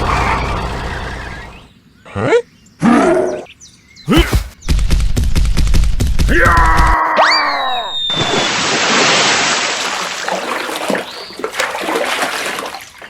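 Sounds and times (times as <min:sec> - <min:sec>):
rising whistle sound effect: 0:07.6 - 0:08.6
water splashing: 0:08.2 - 0:13.0.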